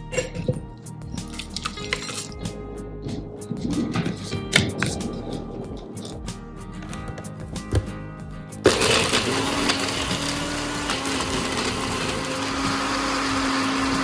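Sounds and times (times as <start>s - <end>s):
blender motor humming: 8.7s - 14.0s.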